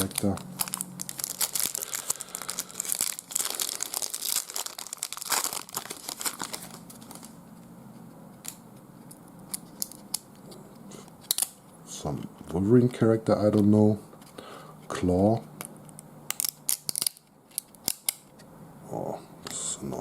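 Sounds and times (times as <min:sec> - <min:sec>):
wrapper tearing and crinkling: 0:00.0 - 0:07.4, 0:16.3 - 0:17.2.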